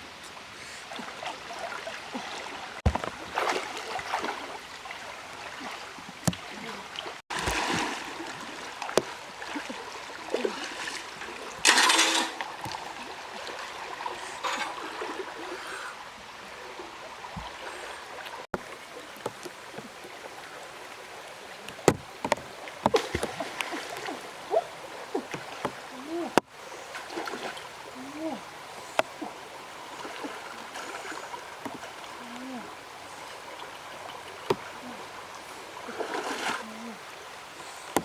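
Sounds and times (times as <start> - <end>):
river water splashing: 0.0 - 38.0
sharp knocks: 21.8 - 23.3.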